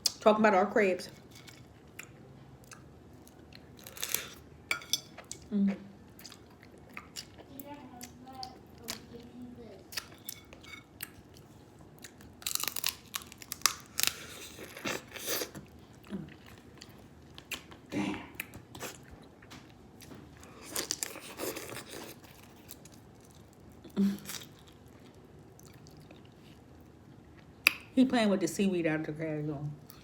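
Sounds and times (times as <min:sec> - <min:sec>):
chewing: 0:05.1 - 0:27.8
crab shells cracking: 0:12.1 - 0:14.8.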